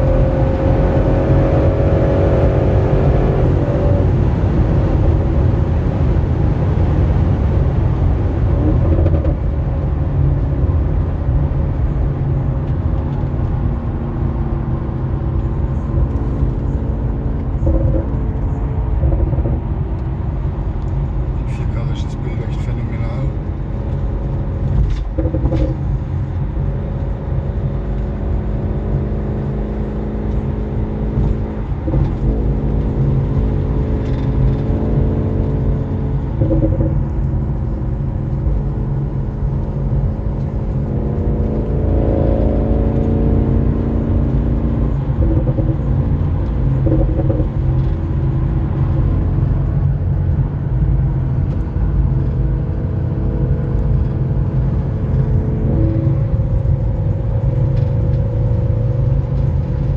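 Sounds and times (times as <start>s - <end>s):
car engine accelerating and shifting: 0.0s - 59.9s.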